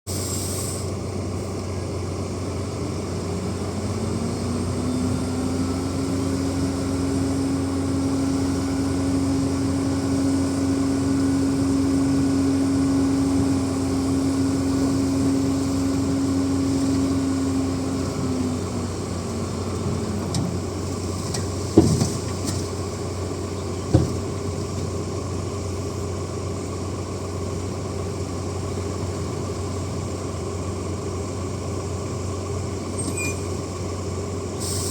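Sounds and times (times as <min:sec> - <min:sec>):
bulldozer diesel engine running: 0:00.1 - 0:34.9.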